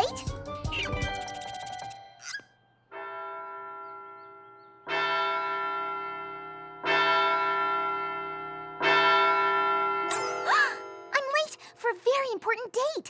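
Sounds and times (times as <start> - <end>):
large bell tolling: 2.9 - 11.2.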